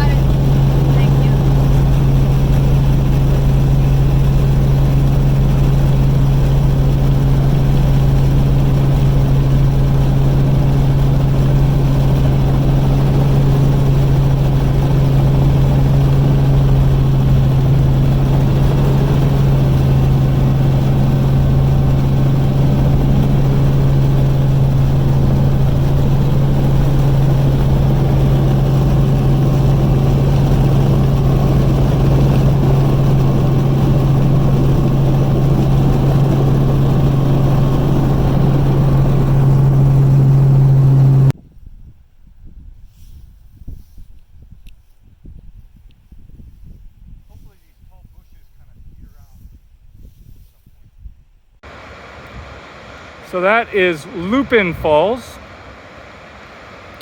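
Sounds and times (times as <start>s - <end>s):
helicopter drone: 0.0s - 41.4s, 51.6s - 57.0s.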